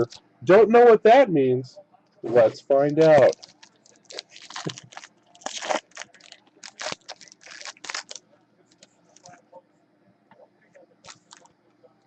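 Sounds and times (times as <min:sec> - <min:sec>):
packaging crinkling and tearing: 0:03.0 - 0:08.2, 0:11.0 - 0:11.5.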